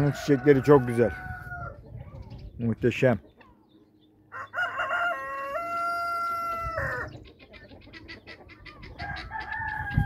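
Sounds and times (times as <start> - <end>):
rooster crowing: 4.3 - 7.2, 9.0 - 10.0.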